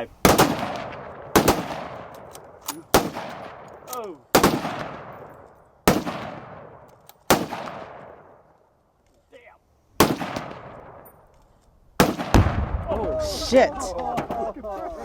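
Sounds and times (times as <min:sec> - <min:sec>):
gunshots with echo: 0:12.0 - 0:13.4.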